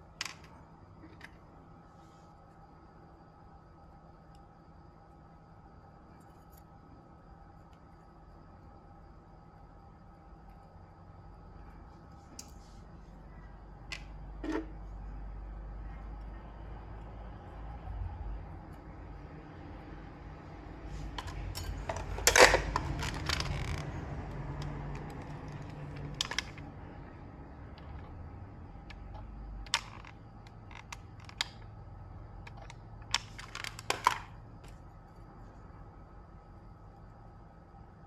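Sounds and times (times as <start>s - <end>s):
low steady hum: 0.0s - 38.0s
small objects clicking on workbench: 21.1s - 26.7s, 29.7s - 31.7s, 32.4s - 34.8s.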